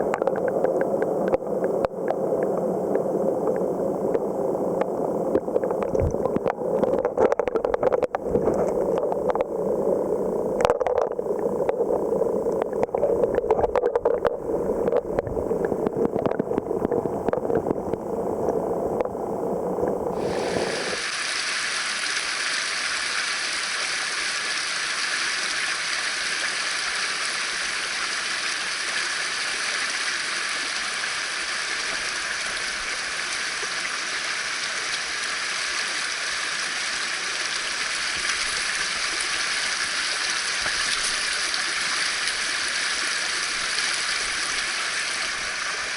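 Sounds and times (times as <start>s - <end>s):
stream water rushing: 20.1s - 45.9s.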